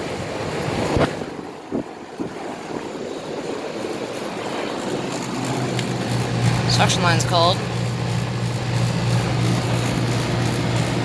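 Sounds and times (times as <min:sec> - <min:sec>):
air conditioner fans blowing: 0:00.0 - 0:11.0
low compressor hum: 0:04.1 - 0:11.0.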